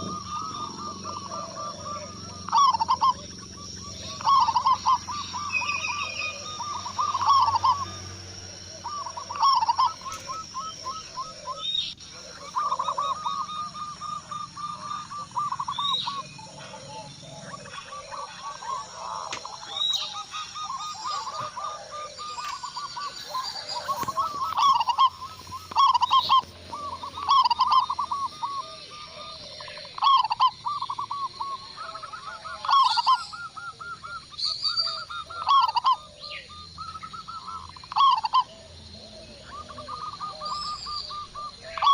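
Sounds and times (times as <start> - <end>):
doves cooing: 0.0 - 41.9
high bird chirps: 0.0 - 41.9.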